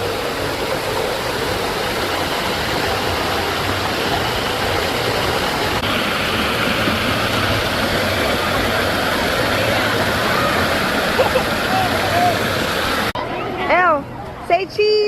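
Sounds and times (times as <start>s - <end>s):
water rushing and splashing: 0.0s - 14.2s.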